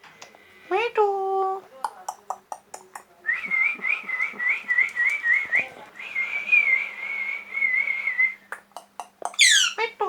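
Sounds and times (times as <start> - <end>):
whistling chirps: 3.3 - 8.4.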